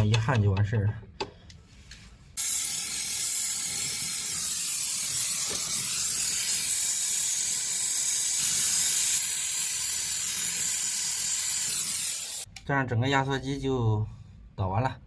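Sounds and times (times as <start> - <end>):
gas torch hissing: 2.4 - 12.5.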